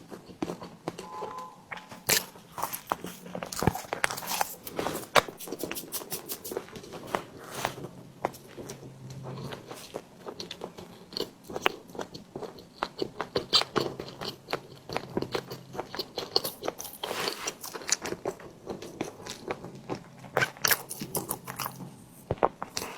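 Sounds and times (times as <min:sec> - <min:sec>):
chewing with wet mouth clicks: 0:00.0 - 0:01.1, 0:01.7 - 0:22.9
crunchy crackles of biting: 0:02.0 - 0:07.1.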